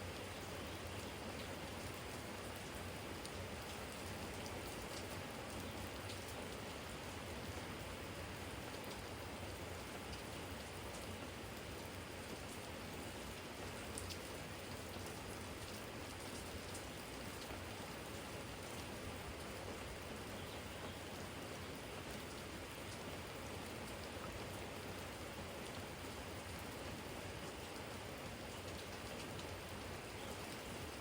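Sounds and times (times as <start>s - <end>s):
steady rain hiss: 0.0s - 31.0s.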